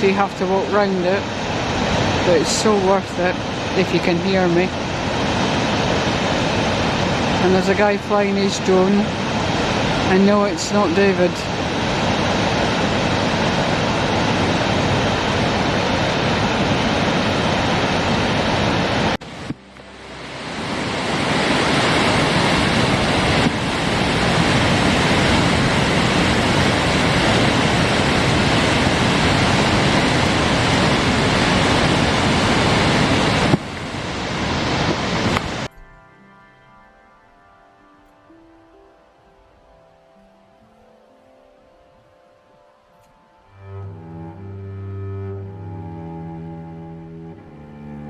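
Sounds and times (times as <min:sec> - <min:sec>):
waterfall rushing: 0:00.0 - 0:35.8.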